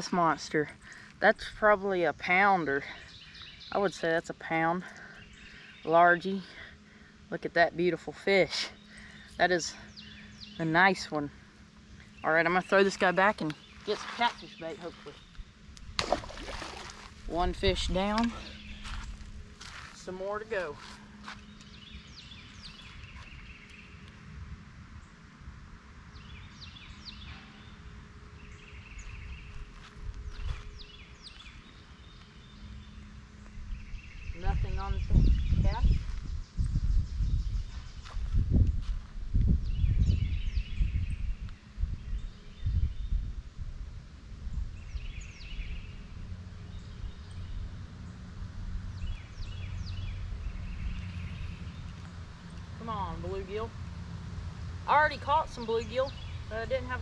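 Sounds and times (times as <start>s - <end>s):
wind rumble on microphone: 14.2s - 27.8s, 28.4s - 57.0s.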